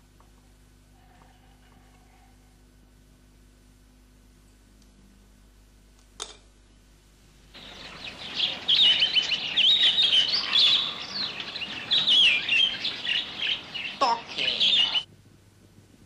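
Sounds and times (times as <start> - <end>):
chorus of small birds chirping: 7.6 - 15.1.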